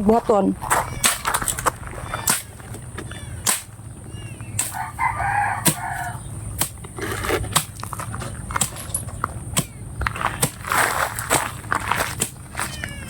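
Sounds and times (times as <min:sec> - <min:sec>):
rooster crowing: 0:04.6 - 0:06.3.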